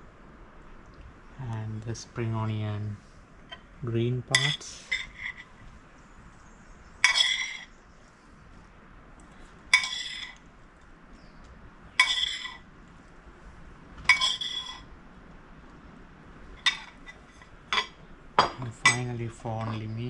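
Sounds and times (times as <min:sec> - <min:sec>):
utensil clinking against bowl: 0:04.3 - 0:05.6, 0:07.0 - 0:07.7, 0:09.7 - 0:10.4, 0:12.0 - 0:12.7, 0:14.1 - 0:14.9, 0:16.6 - 0:20.0.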